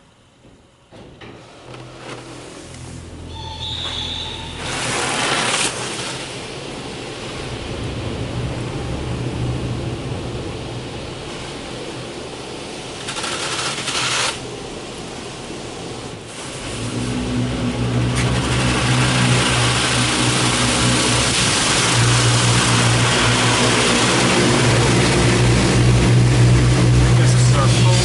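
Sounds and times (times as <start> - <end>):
motor hum: 0.0 - 28.0
water spray hissing on car: 4.6 - 7.4, 11.3 - 28.0.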